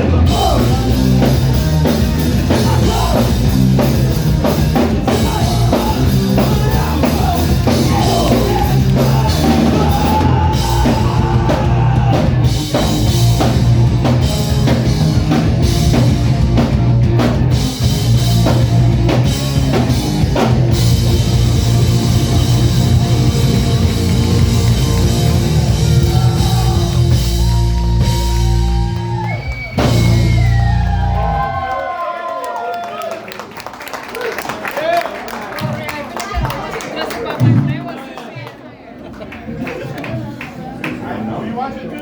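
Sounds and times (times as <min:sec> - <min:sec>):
rock band playing instrumental: 0:00.0 - 0:31.7
drum kit hits: 0:29.8 - 0:30.8.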